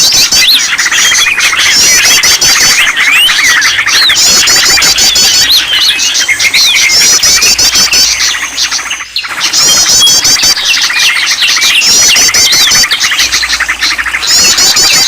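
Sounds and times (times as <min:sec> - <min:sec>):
chorus of songbirds chirping: 0:00.0 - 0:15.0.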